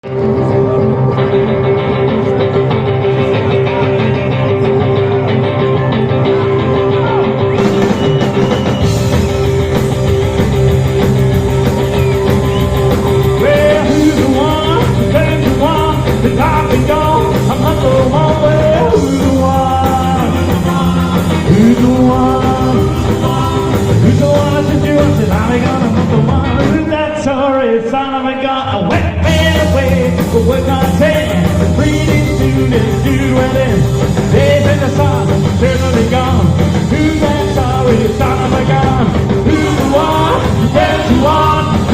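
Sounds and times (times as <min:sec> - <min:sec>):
rock and roll band music: 0:00.0 - 0:41.9.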